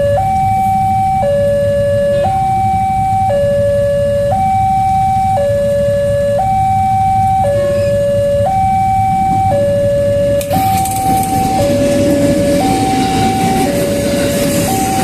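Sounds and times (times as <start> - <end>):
level crossing two-tone alarm: 0.0 - 15.0
low rumble: 5.9 - 15.0
train arriving: 6.5 - 15.0.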